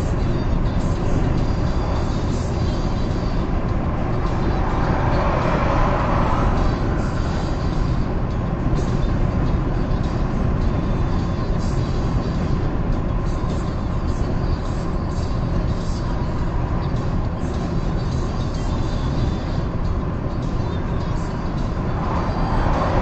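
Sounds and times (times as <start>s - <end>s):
car driving on highway: 0.0s - 23.0s.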